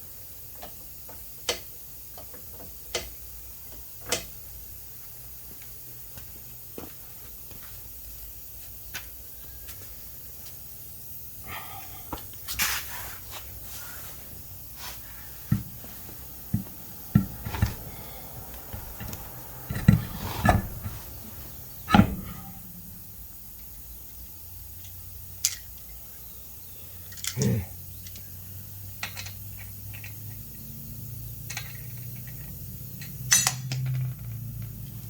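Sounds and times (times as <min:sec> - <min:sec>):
sharp thumps: 0:15.4 - 0:23.9
tools and parts knocking: 0:15.5 - 0:23.3.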